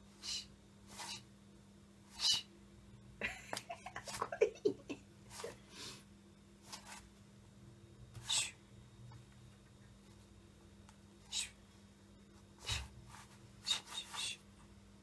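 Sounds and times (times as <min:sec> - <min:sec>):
low steady hum: 0:00.0 - 0:15.0
cat hissing: 0:00.2 - 0:01.3, 0:02.1 - 0:02.5, 0:08.2 - 0:08.6, 0:11.2 - 0:11.6, 0:13.6 - 0:14.4.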